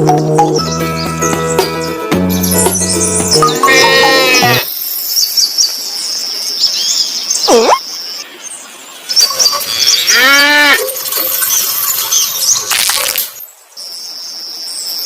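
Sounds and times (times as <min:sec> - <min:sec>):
small birds chirping: 0:00.6 - 0:15.0
cow mooing: 0:03.6 - 0:04.6.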